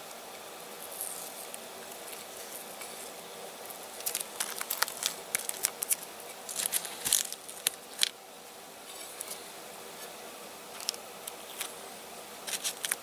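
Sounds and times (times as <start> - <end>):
masking tape peeling and crackling: 0.8 - 8.2, 12.4 - 13.0.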